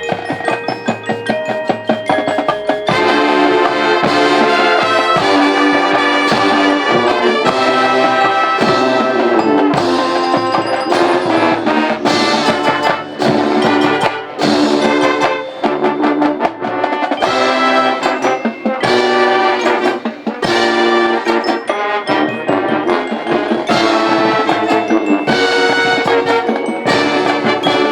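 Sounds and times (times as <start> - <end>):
drums: 0.0 - 27.9
marching band brass: 0.0 - 27.9.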